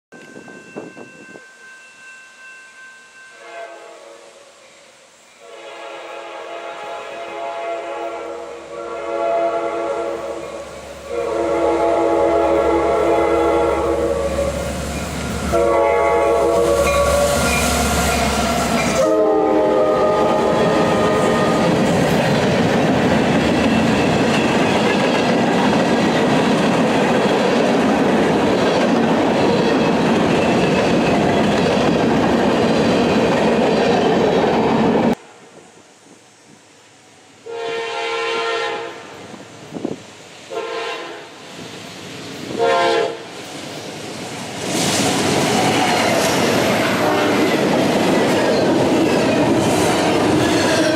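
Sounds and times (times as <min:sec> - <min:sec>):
train air horn: 0:03.0 - 0:21.8, 0:37.4 - 0:39.3, 0:40.5 - 0:41.4, 0:42.5 - 0:43.4, 0:46.8 - 0:47.7
train cars rumbling and clattering: 0:10.1 - 0:35.2, 0:43.4 - 0:50.9.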